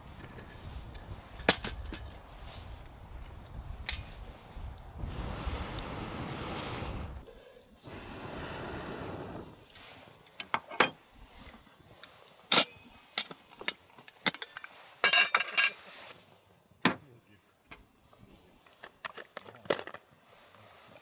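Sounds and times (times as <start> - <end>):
steady rushing hiss: 0.0 - 10.4
metal cookware clinking: 14.3 - 15.9.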